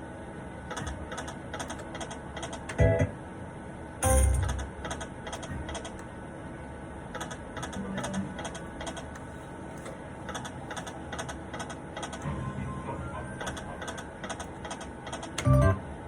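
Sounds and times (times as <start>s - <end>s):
low background hum: 0.0s - 16.0s
slot machine reels ticking: 4.0s - 6.1s, 10.3s - 15.8s.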